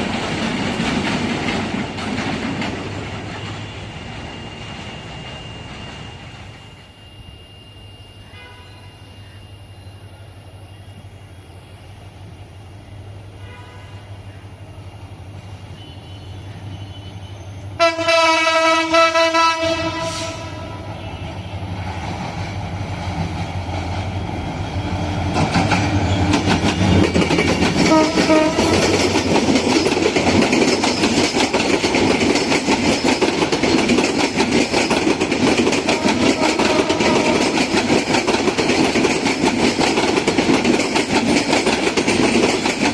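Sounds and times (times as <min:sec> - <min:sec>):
train wheels rumbling on rail: 0:00.0 - 0:42.9
distant horn toots: 0:13.4 - 0:14.1, 0:15.7 - 0:21.7, 0:27.8 - 0:28.9, 0:35.9 - 0:37.6
locomotive horn blast: 0:13.4 - 0:14.1, 0:17.8 - 0:21.5, 0:27.8 - 0:28.9, 0:35.9 - 0:37.6.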